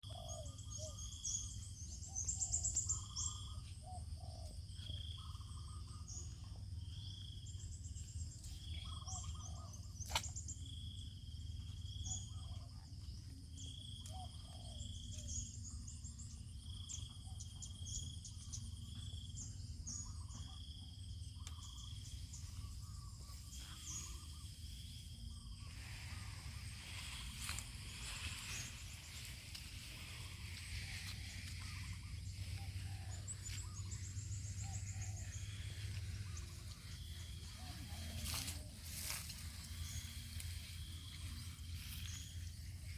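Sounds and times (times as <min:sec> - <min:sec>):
birds calling and singing: 0:00.0 - 0:42.9
steady low rumble: 0:19.3 - 0:42.9.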